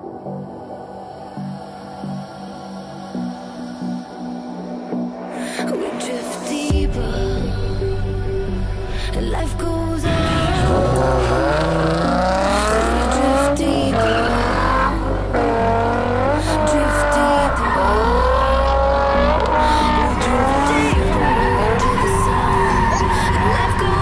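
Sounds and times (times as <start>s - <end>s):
car engine revving hard: 10.0s - 24.0s
tire squeal: 10.1s - 24.0s.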